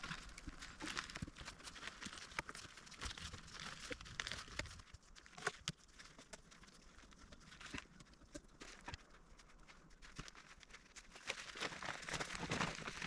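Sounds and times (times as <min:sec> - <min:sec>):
dry leaves and twigs crackling: 0:00.0 - 0:13.0.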